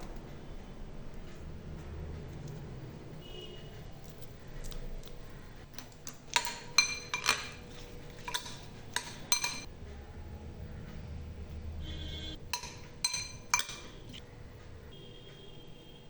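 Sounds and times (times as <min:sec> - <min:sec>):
spoon clinking against bowl: 0:04.0 - 0:09.7, 0:12.5 - 0:14.2.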